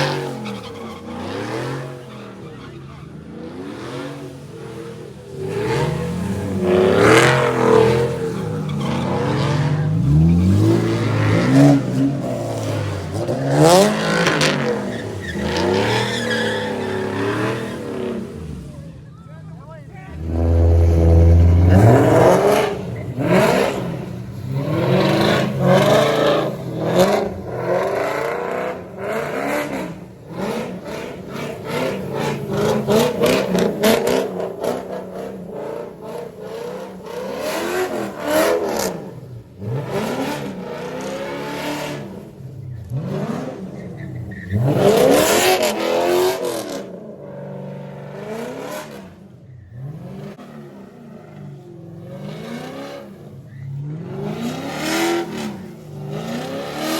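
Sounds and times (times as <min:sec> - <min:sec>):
car engines revving: 0:00.0 - 0:56.9.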